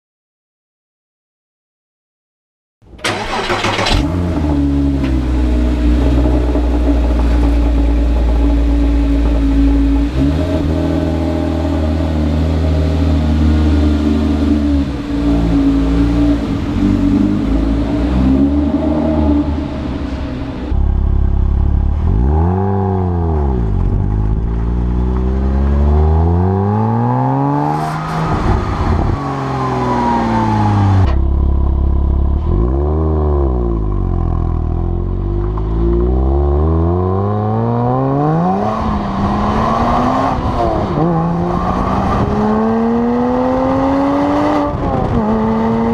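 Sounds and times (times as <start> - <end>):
car engine starting and idling: 2.8 - 36.7
engine revving: 3.0 - 45.9.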